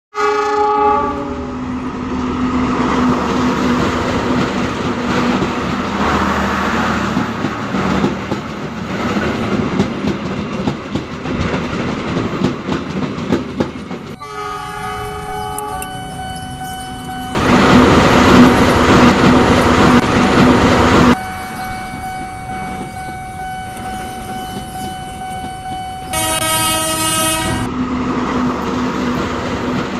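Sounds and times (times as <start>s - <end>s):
train horn chord: 0.1s - 1.6s, 14.2s - 17.3s, 26.0s - 27.7s
train wheels clicking over rail joints: 3.1s - 14.2s, 15.6s - 26.7s.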